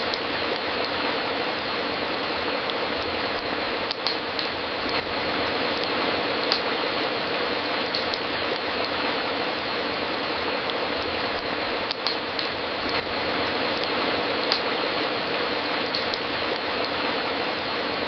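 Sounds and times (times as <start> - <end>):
wood fire crackling and popping: 0.0 - 17.4.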